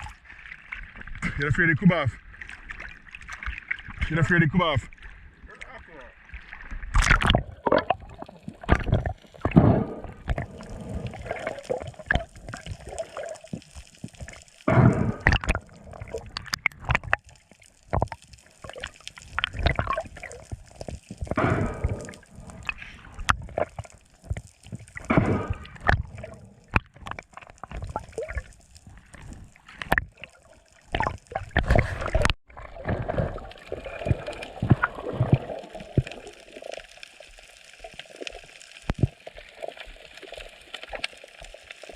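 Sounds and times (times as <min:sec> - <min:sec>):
sea water sloshing: 0:00.0 - 0:01.5, 0:02.2 - 0:41.9
water splashing: 0:00.0 - 0:41.9.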